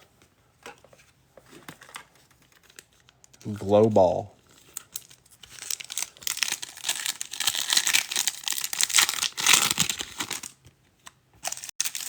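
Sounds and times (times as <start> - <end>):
foil wrapper crinkling and tearing: 4.4 - 10.6, 11.4 - 12.0.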